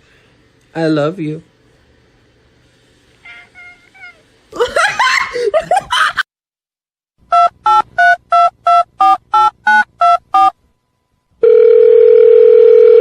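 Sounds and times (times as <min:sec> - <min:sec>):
telephone keypad dialing tones: 0:11.4 - 0:13.0
telephone line tone: 0:11.4 - 0:13.0.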